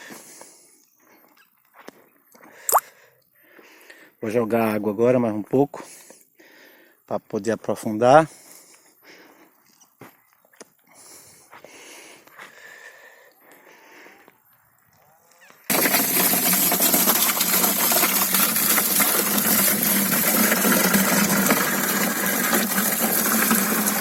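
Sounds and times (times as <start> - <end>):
water gushing into hole: 15.7 - 24.0.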